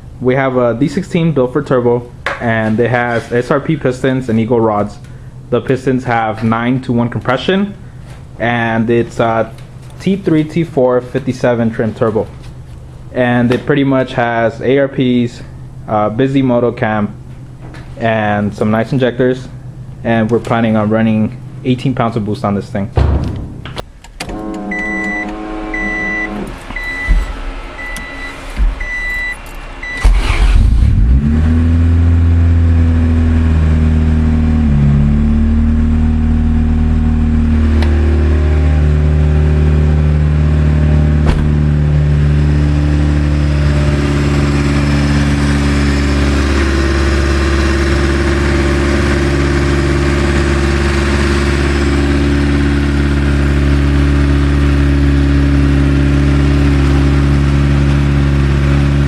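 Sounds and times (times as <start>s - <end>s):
car engine cranking and idling: 1.0s - 14.8s, 23.2s - 59.0s
high electronic beep: 24.6s - 30.1s.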